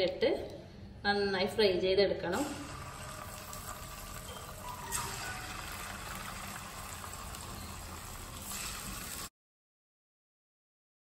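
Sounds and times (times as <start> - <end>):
chicken sizzling in hot oil: 2.4 - 9.3.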